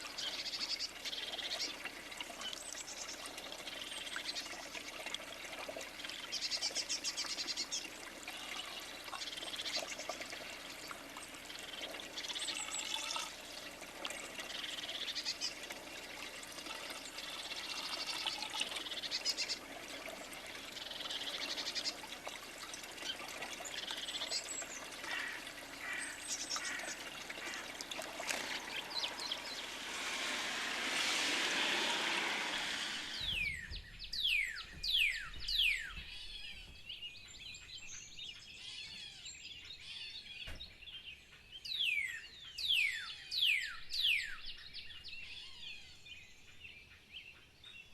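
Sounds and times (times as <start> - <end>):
small songbirds chirping: 0.0 - 47.9
steady hiss: 24.9 - 33.8
quick falling whistles: 28.8 - 35.7.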